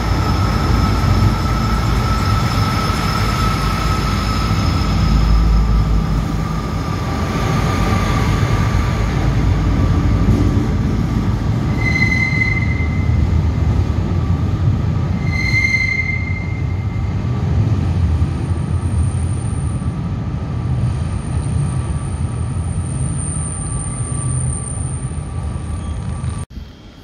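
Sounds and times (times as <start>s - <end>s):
train wheel squeal: 0.0s - 17.6s, 18.3s - 27.0s
train diesel engine rumble: 0.0s - 27.0s.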